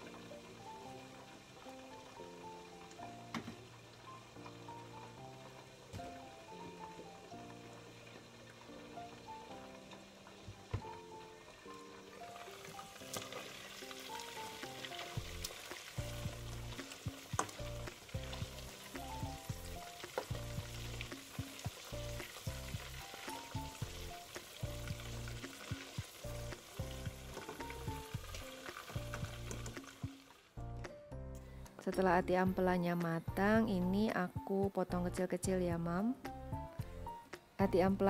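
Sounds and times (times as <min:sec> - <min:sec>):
meat sizzling in oil: 0:00.0 - 0:30.5.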